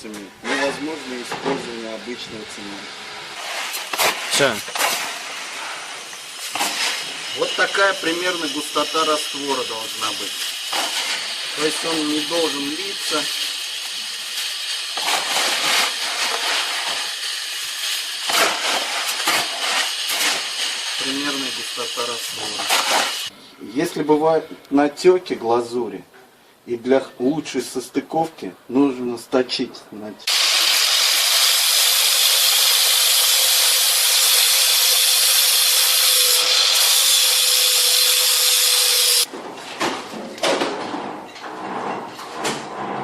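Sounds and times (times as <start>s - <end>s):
power grinder grinding tile: 3.3s - 23.3s, 30.3s - 39.3s
trowel scraping mortar: 3.4s - 23.3s, 30.3s - 39.3s.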